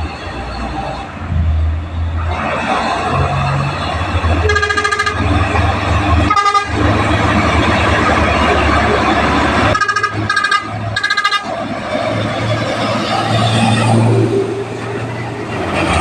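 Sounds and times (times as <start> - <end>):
heavy truck engines under load: 0.0 - 16.0
truck horn blasts: 4.3 - 5.6, 6.2 - 7.0, 9.6 - 11.6.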